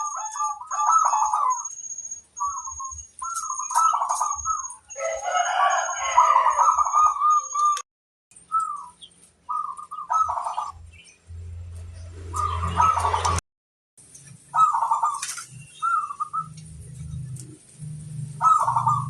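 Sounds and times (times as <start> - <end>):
doves cooing: 0.0 - 1.7, 2.4 - 7.8, 8.5 - 10.9, 12.2 - 13.4, 14.5 - 19.0
rooster crowing: 4.9 - 7.2.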